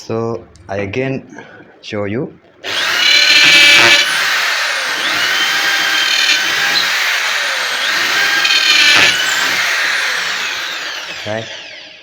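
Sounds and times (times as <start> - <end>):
electric drill boring into wood: 2.6 - 12.0.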